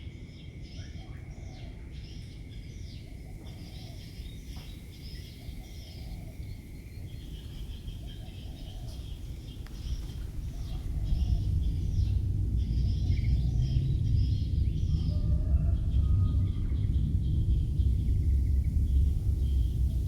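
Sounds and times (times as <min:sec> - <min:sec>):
birds singing: 0:00.0 - 0:20.0
low wind rumble: 0:00.0 - 0:20.0.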